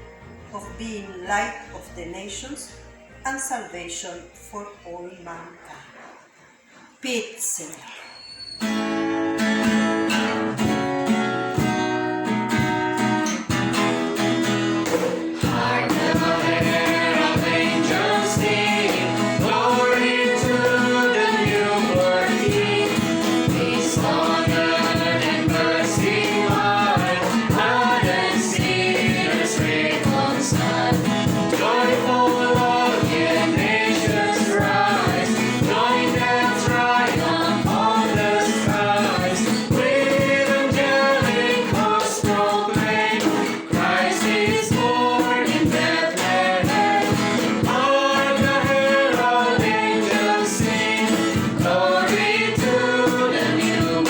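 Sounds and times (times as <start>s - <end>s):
instrumental accompaniment: 8.7s - 54.0s
steady beat: 14.8s - 54.0s
choir singing: 15.0s - 54.0s.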